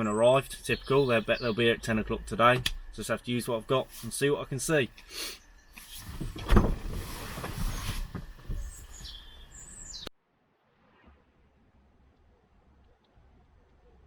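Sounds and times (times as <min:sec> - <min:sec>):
bird chirping: 0:00.0 - 0:03.8, 0:07.7 - 0:10.1
thump: 0:06.2 - 0:08.7.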